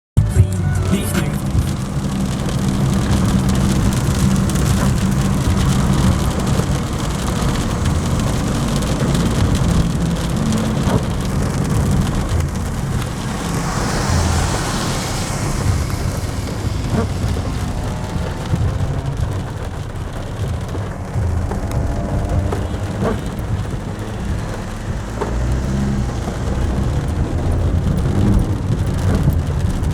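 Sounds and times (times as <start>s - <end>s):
heavy rain drumming on a car: 0.2s - 29.9s
moving car rumble: 0.2s - 29.9s.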